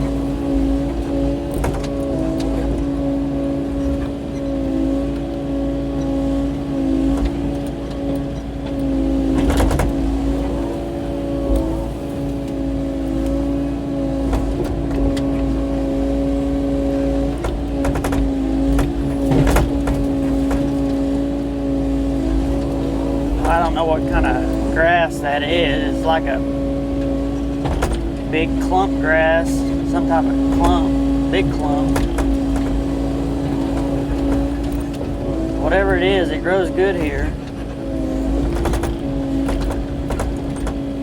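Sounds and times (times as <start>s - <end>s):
excavator diesel engine running: 0.0s - 41.0s
hydraulic whine: 0.0s - 41.0s
sharp knocks: 17.3s - 21.1s, 30.5s - 35.3s.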